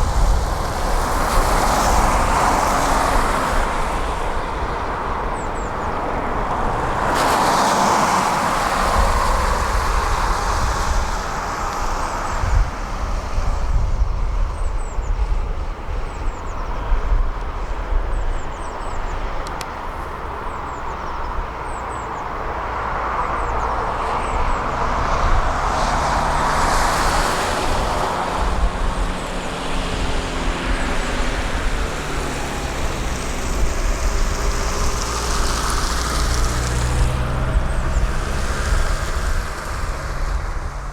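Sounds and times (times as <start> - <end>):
excavator diesel engine rumbling: 21.4 - 40.9.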